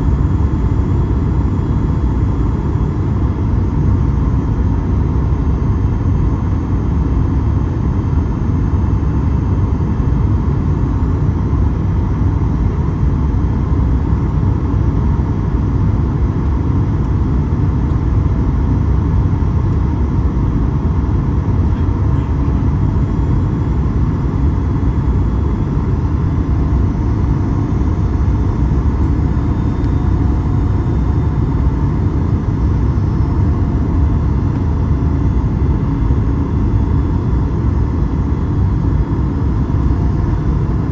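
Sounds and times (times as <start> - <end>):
airplane cabin rumble: 13.1 - 40.9.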